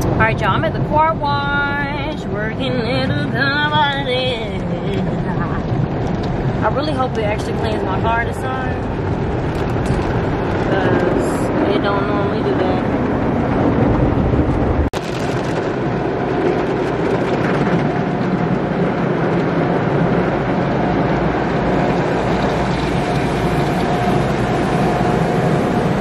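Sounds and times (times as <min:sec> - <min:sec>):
car wash water spray: 0:15.0 - 0:26.0.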